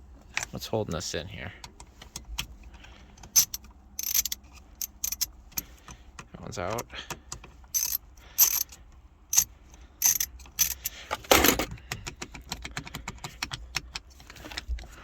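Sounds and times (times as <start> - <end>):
metal parts clicking and rattling: 2.1 - 5.8, 7.7 - 15.0.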